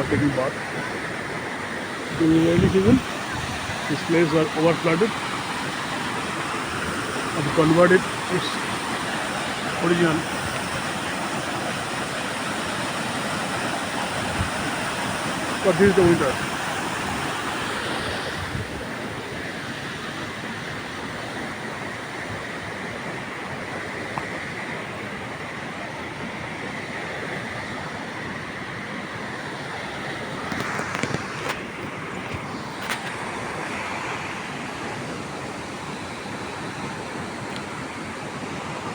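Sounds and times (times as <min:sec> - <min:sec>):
waterfall rushing: 0:00.0 - 0:21.8.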